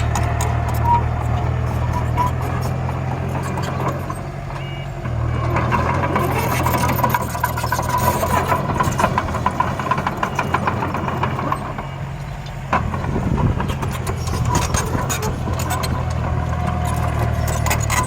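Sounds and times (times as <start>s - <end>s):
heavy vehicle engine running: 0.0s - 18.0s
rattling clatter: 5.1s - 12.0s, 12.7s - 18.0s.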